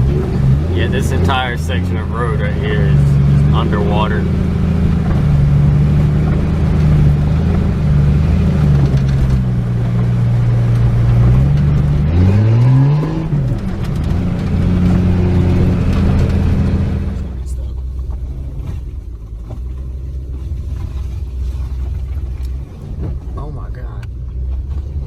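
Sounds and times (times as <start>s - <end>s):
rushing water: 0.0s - 17.8s
vehicle engine under load: 0.0s - 25.0s.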